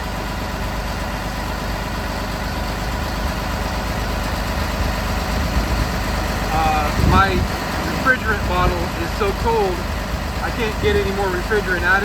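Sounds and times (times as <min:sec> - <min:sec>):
air conditioning running: 0:00.0 - 0:12.0
bus engine idling: 0:00.0 - 0:12.0.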